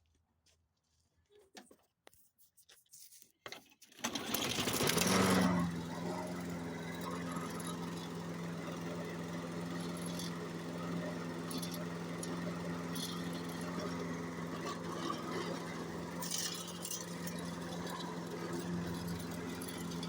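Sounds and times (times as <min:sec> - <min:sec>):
lawn mower engine running: 0:04.0 - 0:20.0.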